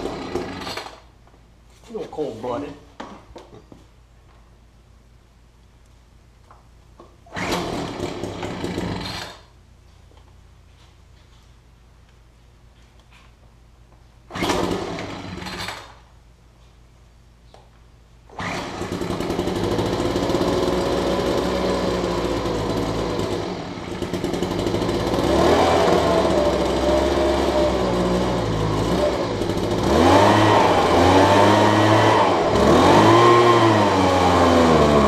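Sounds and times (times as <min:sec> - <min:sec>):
leaf blower engine revving: 0:00.0 - 0:01.0, 0:07.3 - 0:09.4, 0:14.3 - 0:15.9, 0:18.3 - 0:35.0.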